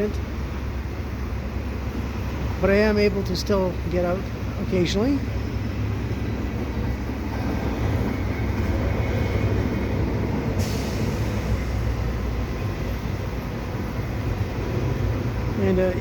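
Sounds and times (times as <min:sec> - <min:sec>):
freight train wheels rumbling: 0:00.0 - 0:16.0
brief hiss: 0:10.6 - 0:12.0.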